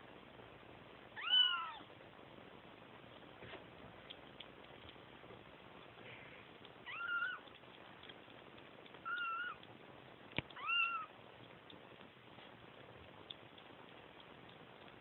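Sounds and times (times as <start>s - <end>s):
kitten meowing: 1.2s - 1.9s, 6.8s - 7.5s, 9.0s - 9.6s, 10.5s - 11.1s.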